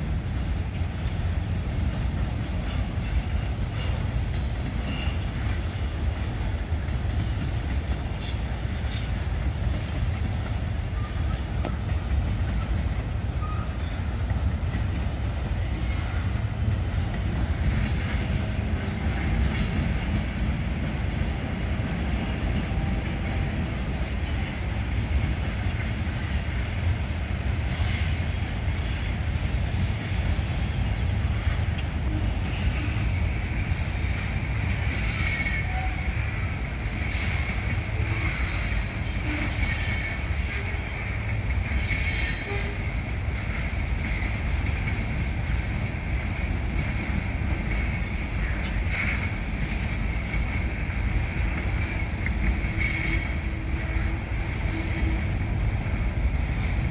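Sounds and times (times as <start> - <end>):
freight train rumbling on rails: 0.0 - 56.9
train wheels squealing: 2.4 - 5.9, 6.8 - 18.4, 19.1 - 20.9, 27.3 - 29.0, 29.8 - 46.0, 46.6 - 56.9.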